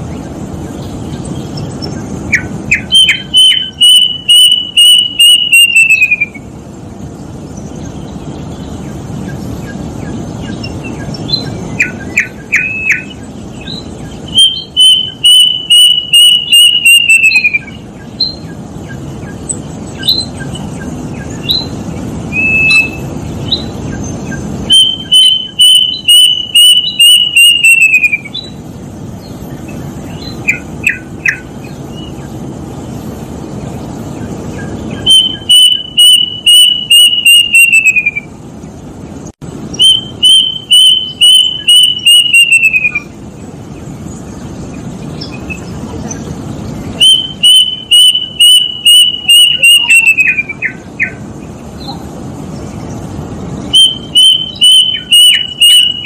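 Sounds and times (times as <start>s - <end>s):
cuckoo whistling notes: 2.3s - 6.5s, 14.3s - 18.4s, 22.3s - 23.6s, 24.6s - 28.5s, 35.0s - 38.3s, 39.8s - 43.1s, 47.0s - 51.2s, 53.7s - 56.0s.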